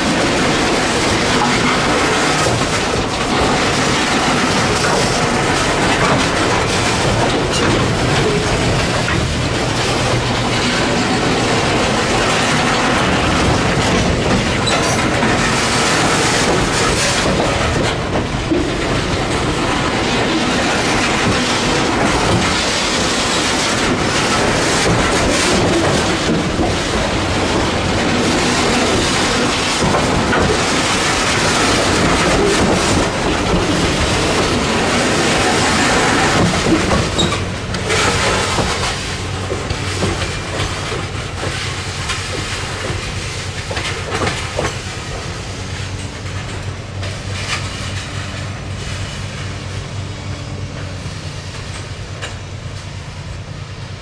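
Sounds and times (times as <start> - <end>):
train wheels clacking over rail joints: 0.0 - 54.0.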